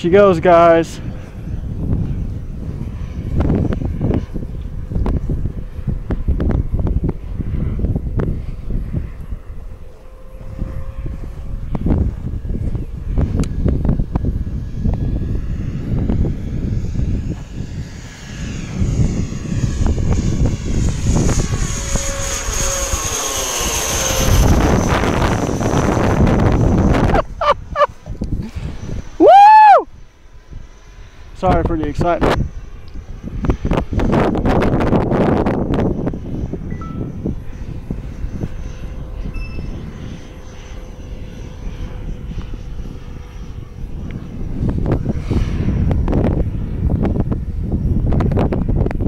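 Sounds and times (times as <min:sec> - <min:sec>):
model airplane motors whining: 0:00.0 - 0:49.0
excited shouts: 0:29.2 - 0:29.8.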